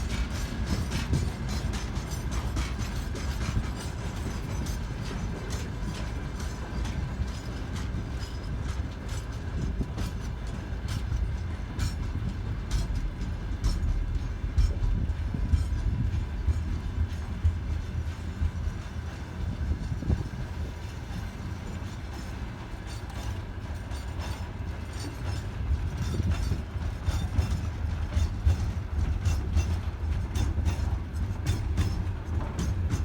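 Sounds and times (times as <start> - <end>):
freight train rumbling past: 0.0 - 33.0
wheels clicking over rail joints: 21.0 - 33.0.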